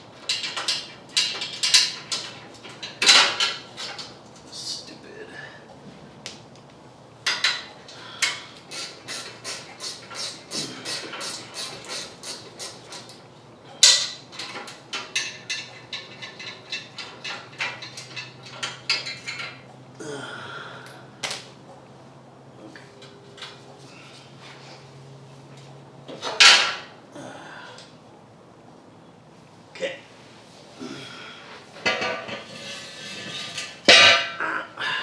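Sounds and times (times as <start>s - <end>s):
metal scrape: 31.7s - 34.4s.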